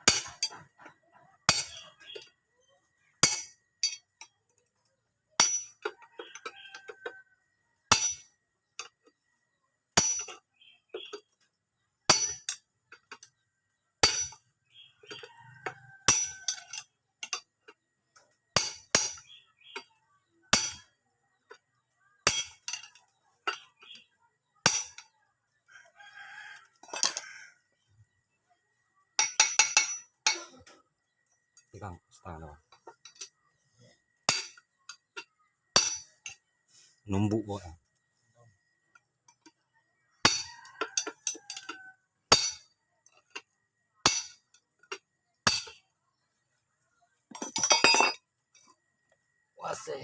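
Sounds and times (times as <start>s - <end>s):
hammer striking metal: 3.2s - 4.0s, 5.4s - 5.8s, 7.9s - 8.3s, 12.1s - 12.6s, 14.0s - 14.4s, 18.6s - 19.3s, 20.5s - 20.9s, 24.6s - 25.1s, 29.2s - 30.6s, 34.3s - 34.7s, 35.7s - 36.4s, 42.3s - 42.7s, 44.0s - 44.4s.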